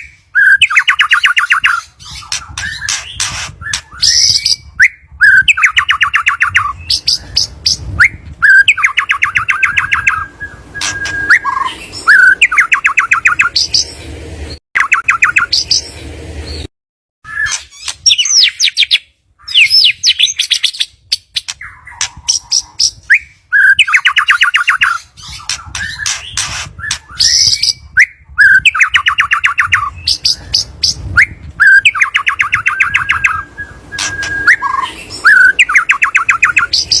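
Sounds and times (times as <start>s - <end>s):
songbird singing trills and whistles: 0.0s - 37.0s.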